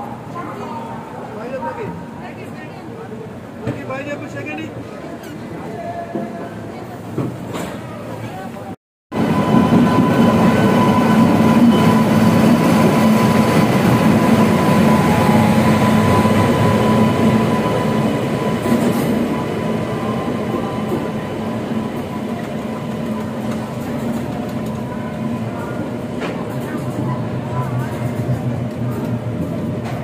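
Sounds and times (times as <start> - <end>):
train wheels rumbling on rails: 9.1 - 30.0.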